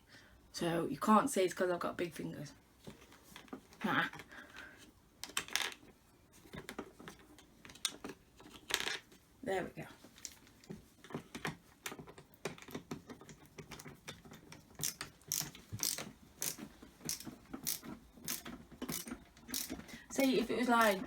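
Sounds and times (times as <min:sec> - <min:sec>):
screwdriver clicking: 0:14.8 - 0:19.8.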